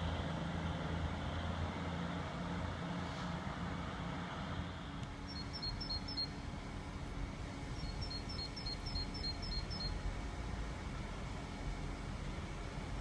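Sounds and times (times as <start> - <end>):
distant diesel train rumble: 0.0 - 13.0
small bird singing: 5.3 - 6.4, 7.8 - 10.0.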